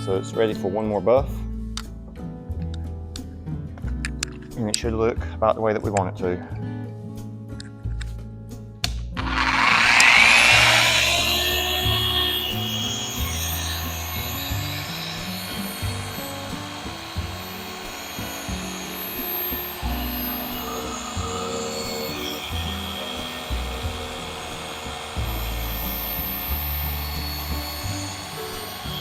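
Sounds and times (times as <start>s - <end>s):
background music: 0.0s - 29.0s
machine polisher whirring: 9.2s - 29.0s.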